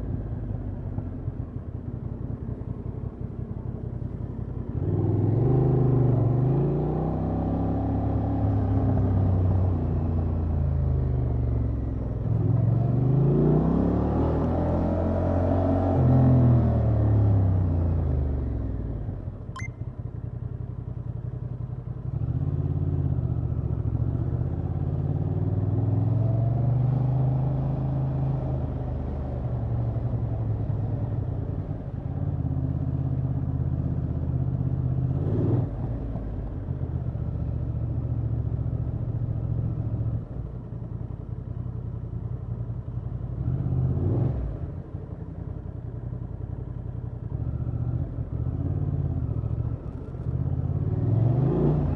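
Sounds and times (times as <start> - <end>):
motorcycle engine revving: 46.5 - 51.9.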